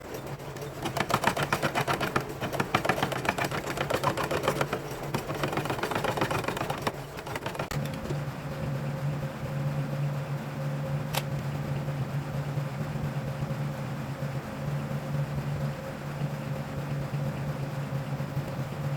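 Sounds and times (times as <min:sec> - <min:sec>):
machine rattling clicks: 0:00.0 - 0:08.2
machine low hum: 0:00.0 - 0:18.9
sharp click: 0:11.1 - 0:11.4.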